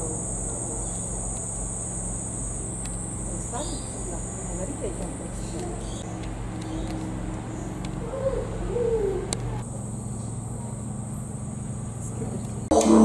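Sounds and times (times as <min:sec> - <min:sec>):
didgeridoo drone: 0:00.0 - 0:13.0
machine hum: 0:00.0 - 0:13.0
bird hooting: 0:03.1 - 0:11.9.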